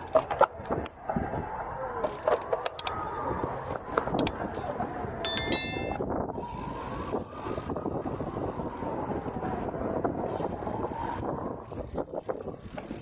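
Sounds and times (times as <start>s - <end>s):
bicycle rolling noise: 10.2s - 13.0s.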